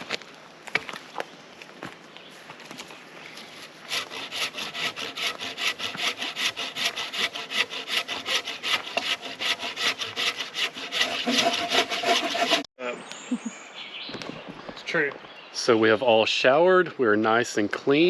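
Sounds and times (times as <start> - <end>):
rasping back and forth strokes: 3.5 - 12.7.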